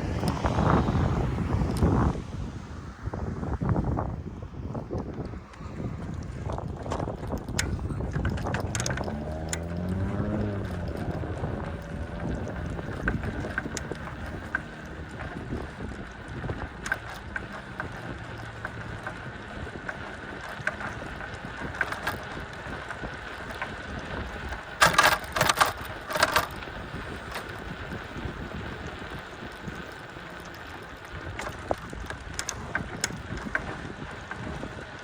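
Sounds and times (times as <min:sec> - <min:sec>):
bicycle clicks: 0:00.0 - 0:02.2, 0:03.6 - 0:35.0
wind rushing over microphone: 0:00.0 - 0:35.0.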